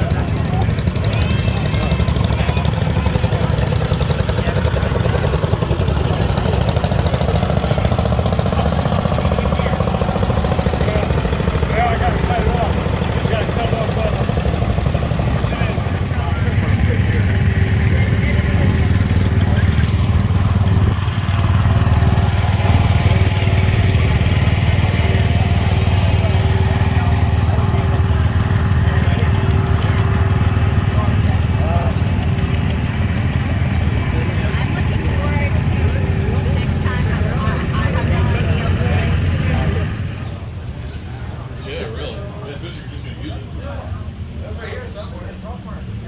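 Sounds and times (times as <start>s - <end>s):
garden tractor engine running: 0.0s - 40.4s.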